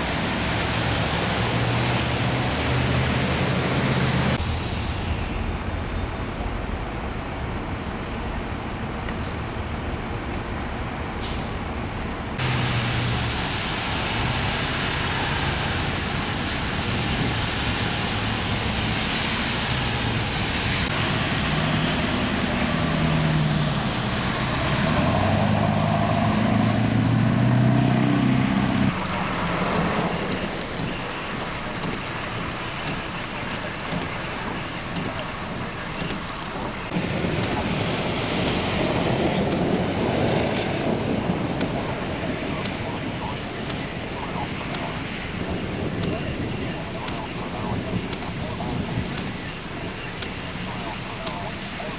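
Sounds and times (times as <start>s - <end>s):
storm rain: 0.0s - 7.2s, 11.3s - 51.9s
road traffic: 0.0s - 51.9s
wind: 0.0s - 51.9s
vehicle engine droning: 12.4s - 51.9s.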